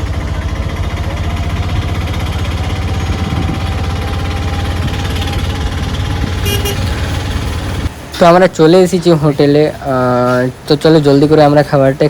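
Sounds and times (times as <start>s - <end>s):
vehicle engine throbbing: 0.0s - 8.0s.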